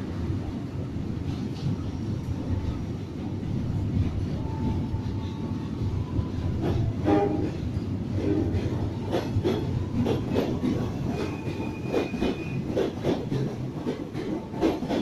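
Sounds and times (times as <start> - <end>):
train wheels clattering over joints: 6.6 - 15.0.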